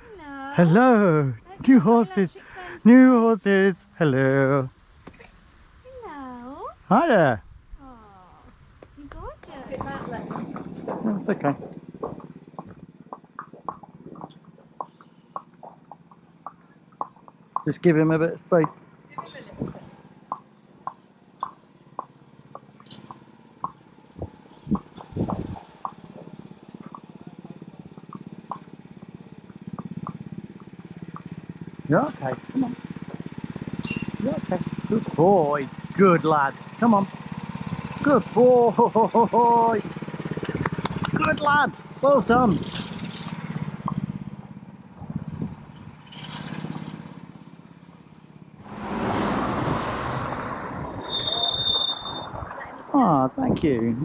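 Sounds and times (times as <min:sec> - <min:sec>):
engine hum: 0:00.0 - 0:54.0
vehicle passing rush: 0:00.0 - 0:54.0
hooves clopping on road: 0:07.9 - 0:38.4, 0:39.8 - 0:52.2
low thumps: 0:08.8 - 0:17.9, 0:23.6 - 0:28.6.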